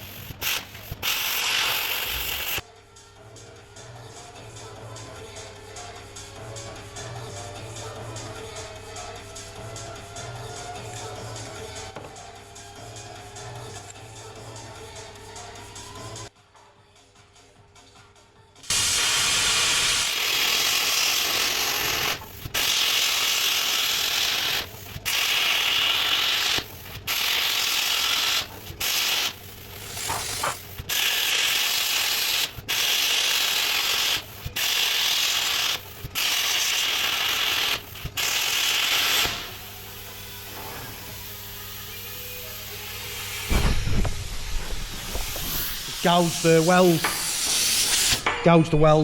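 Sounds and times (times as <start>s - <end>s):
plasma torch hissing: 0.0s - 2.6s, 18.7s - 41.8s, 42.7s - 48.2s.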